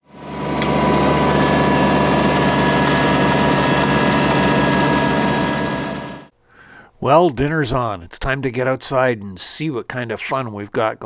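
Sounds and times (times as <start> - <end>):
engine-driven machine running: 0.0 - 6.3
constant whine: 0.1 - 6.3.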